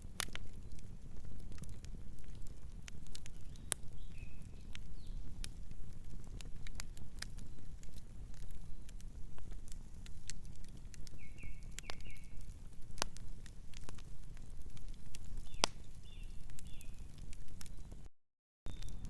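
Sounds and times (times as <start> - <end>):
wood fire crackling: 0.0 - 18.1, 18.7 - 19.0
faint bird chirps: 11.1 - 12.4, 18.7 - 19.0.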